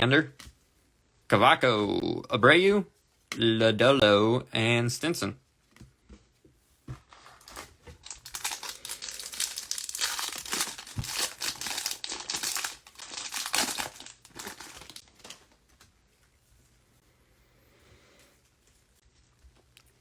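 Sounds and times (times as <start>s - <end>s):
foil wrapper tearing and crinkling: 7.4s - 15.6s.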